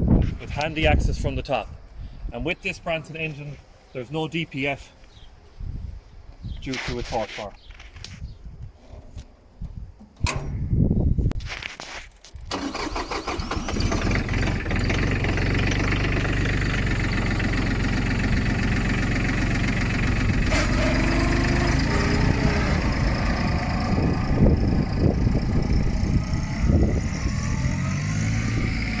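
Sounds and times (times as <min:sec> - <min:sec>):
diesel tractor engine idling: 0:12.5 - 0:29.0.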